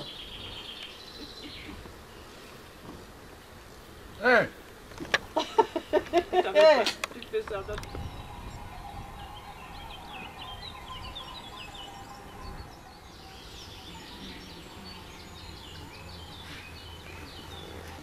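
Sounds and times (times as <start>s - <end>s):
birds chirping and singing: 0.0s - 3.6s, 5.0s - 18.0s
outdoor background noise: 0.0s - 18.0s.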